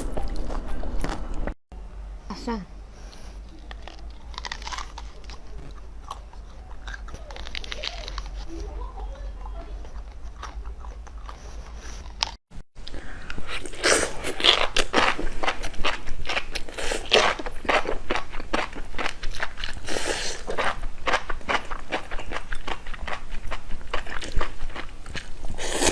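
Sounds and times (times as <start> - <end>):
wet chewing and smacking: 3.4 - 25.9.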